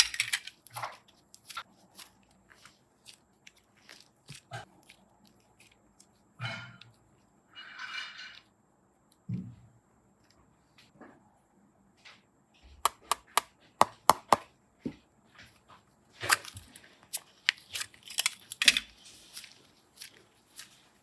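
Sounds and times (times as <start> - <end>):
slime clicking pops: 12.9 - 14.4.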